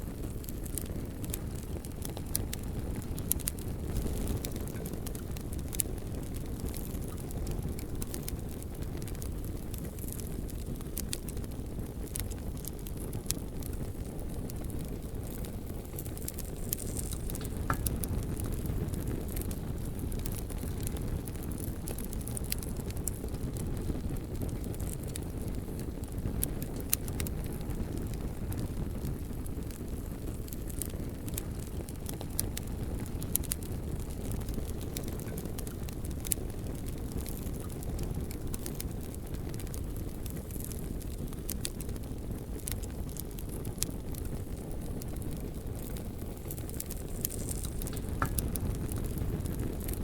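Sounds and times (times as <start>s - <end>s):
logs crackling and popping: 0.0s - 50.0s
wood fire roaring: 0.0s - 50.0s.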